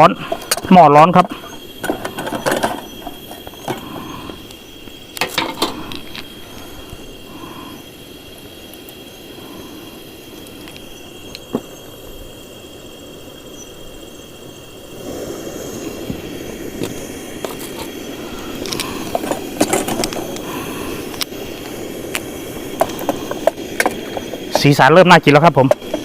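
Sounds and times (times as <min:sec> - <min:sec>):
chicken cooking in pot: 0:00.0 - 0:26.0
utensil scraping and knocking pot: 0:00.2 - 0:04.4, 0:05.2 - 0:06.3, 0:16.8 - 0:21.3, 0:22.1 - 0:24.8, 0:25.6 - 0:26.0.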